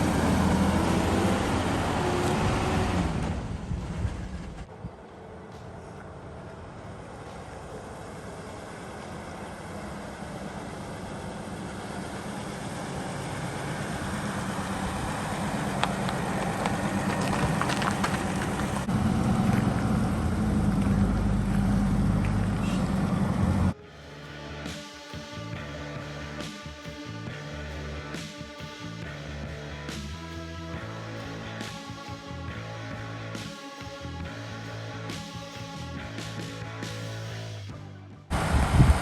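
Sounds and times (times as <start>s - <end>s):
vehicle engine and tyre noise: 0.0s - 24.6s, 38.3s - 39.0s
scattered crackles: 13.7s - 23.5s.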